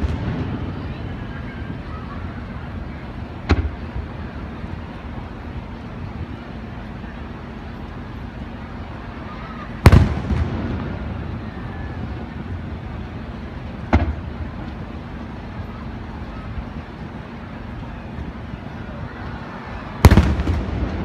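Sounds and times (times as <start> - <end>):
firework bang: 0.0 - 0.9, 3.4 - 3.9, 9.8 - 11.5, 13.9 - 14.4, 20.0 - 21.0
firework crackles: 0.0 - 6.0, 7.2 - 17.7, 19.4 - 21.0
firework shell burst rumbling: 20.0 - 21.0.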